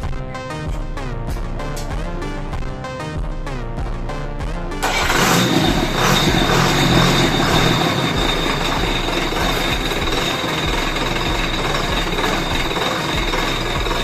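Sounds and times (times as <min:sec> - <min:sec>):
music: 0:00.0 - 0:14.0
big engine running loud: 0:04.8 - 0:14.0
high-pitched whine: 0:05.1 - 0:14.0.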